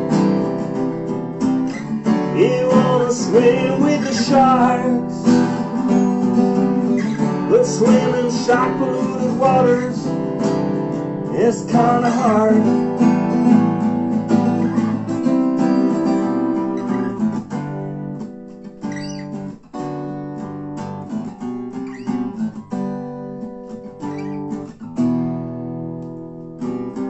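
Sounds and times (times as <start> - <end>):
acoustic guitars strumming chords: 0.0 - 27.0.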